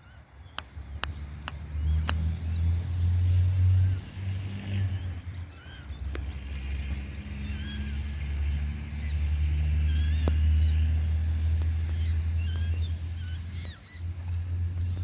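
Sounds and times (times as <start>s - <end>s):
waterbird chicks peeping: 0.0s - 15.0s
steady low rumble: 4.8s - 15.0s.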